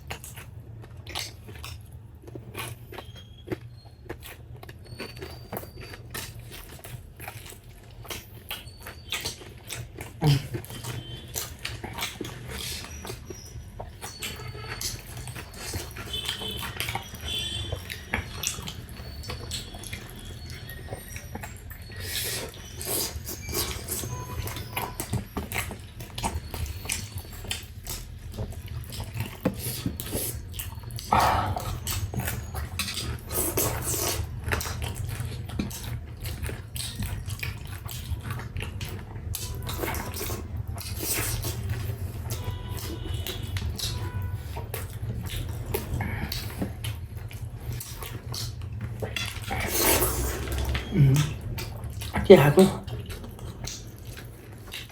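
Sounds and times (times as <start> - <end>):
food being chewed and crunched: 0.0 - 54.9.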